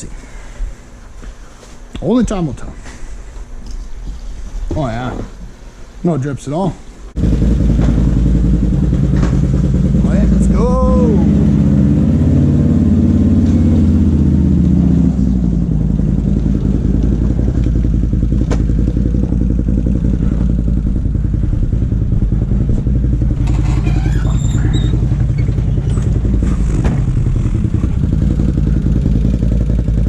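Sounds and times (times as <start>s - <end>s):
atv engine idling: 7.2s - 30.0s.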